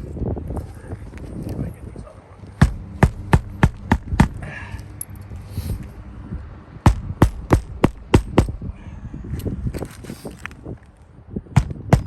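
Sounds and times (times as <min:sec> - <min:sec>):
low steady rumble: 0:00.0 - 0:12.0
hammer striking roofing nails: 0:02.6 - 0:04.4, 0:06.9 - 0:08.6, 0:11.6 - 0:12.0.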